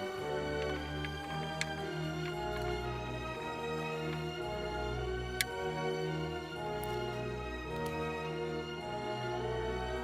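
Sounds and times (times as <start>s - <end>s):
slow instrumental music: 0.0s - 10.0s.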